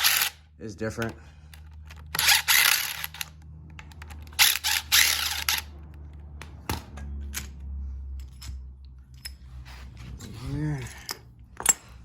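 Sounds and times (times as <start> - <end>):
metal tools clicking: 7.0 - 9.6, 10.8 - 12.0.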